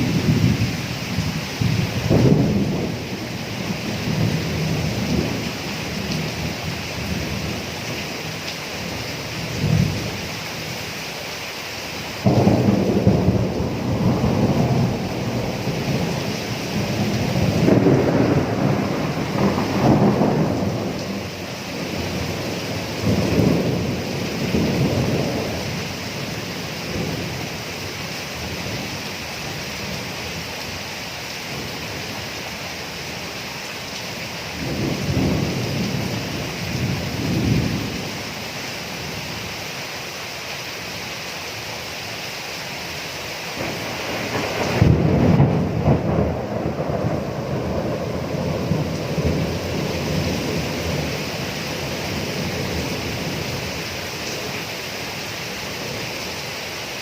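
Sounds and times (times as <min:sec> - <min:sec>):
thunder rolling: 0:00.0 - 0:05.4, 0:12.2 - 0:25.8, 0:43.6 - 0:53.4
steady rain: 0:00.0 - 0:57.0.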